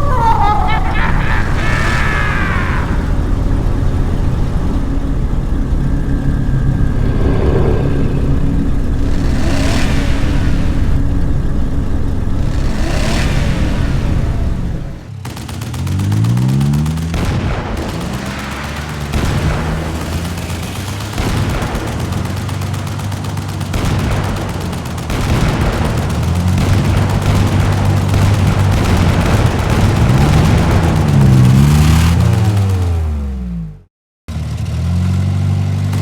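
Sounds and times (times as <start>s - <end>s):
cartoon engine revving: 0.0s - 3.9s
fast rattling clatter: 20.2s - 32.8s.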